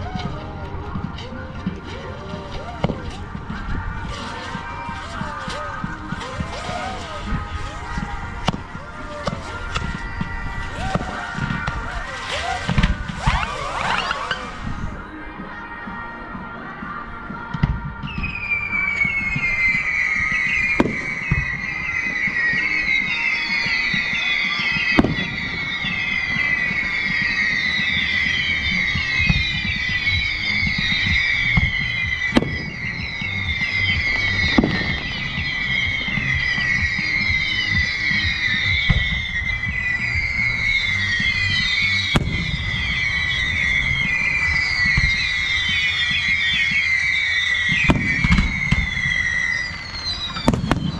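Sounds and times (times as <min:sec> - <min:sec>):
firework bangs: 0:00.0 - 0:15.1, 0:17.6 - 0:50.9
firework whistles falling in pitch: 0:02.6 - 0:15.0, 0:18.0 - 0:50.9.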